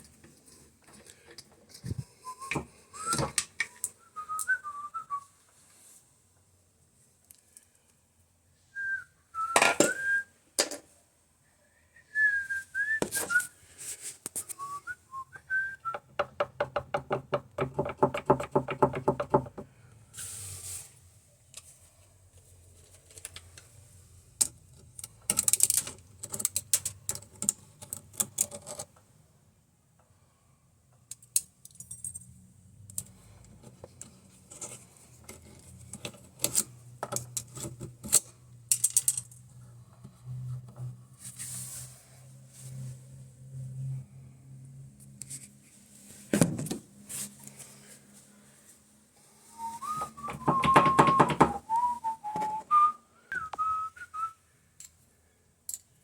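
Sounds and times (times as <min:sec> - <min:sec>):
person whistling: 0:02.2 - 0:03.4, 0:04.0 - 0:05.3, 0:08.7 - 0:10.3, 0:11.9 - 0:13.5, 0:14.6 - 0:16.0, 0:49.5 - 0:54.4
tools and metal parts clinking: 0:24.4 - 0:28.9, 0:31.1 - 0:33.1, 0:34.0 - 0:39.4, 0:55.7 - 0:56.0.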